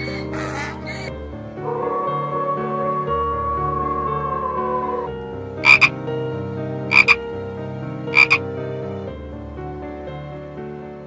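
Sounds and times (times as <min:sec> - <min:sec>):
background music: 0:00.0 - 0:11.0
animal calls: 0:05.6 - 0:05.9, 0:06.9 - 0:07.2, 0:08.1 - 0:08.4.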